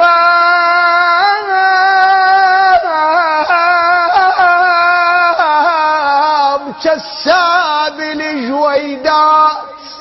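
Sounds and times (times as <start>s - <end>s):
man singing high ornamented notes: 0.0s - 10.0s.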